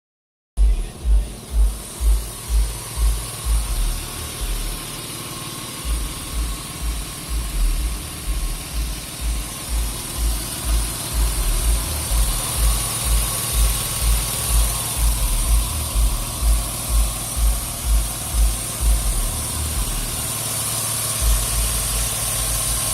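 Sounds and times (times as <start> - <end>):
low repeating thump: 0.6 - 4.9, 5.8 - 20.0
car engine idling: 0.6 - 22.9.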